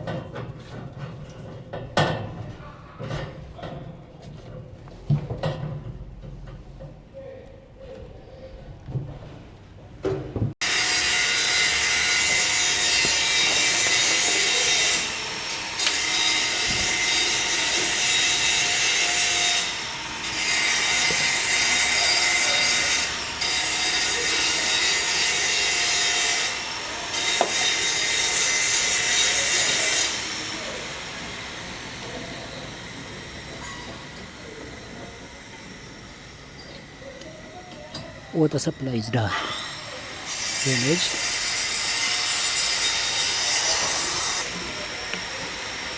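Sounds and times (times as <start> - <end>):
power tool running with hiss: 39.4 - 45.9.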